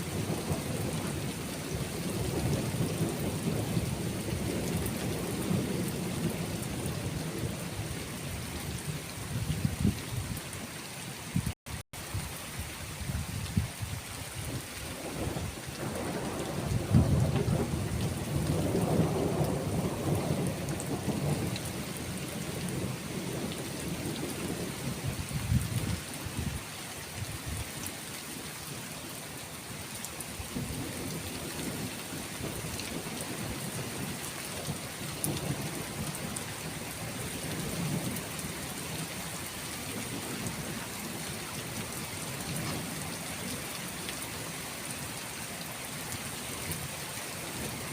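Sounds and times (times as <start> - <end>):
steady rain: 0.0 - 47.9
rolling thunder: 14.5 - 26.5
thunder clap: 15.1 - 21.5.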